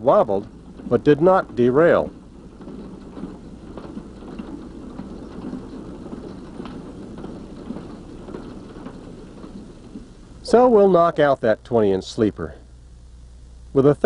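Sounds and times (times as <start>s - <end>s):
wheel clicks: 0.0s - 11.1s
freight cars rumbling and rattling: 0.0s - 11.8s.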